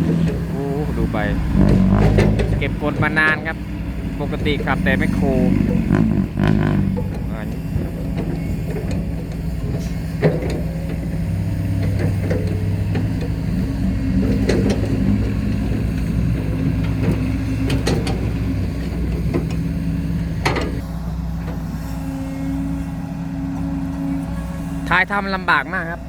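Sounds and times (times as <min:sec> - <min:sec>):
clanks and knocks: 0:00.0 - 0:20.8
truck engine under load: 0:00.0 - 0:26.0.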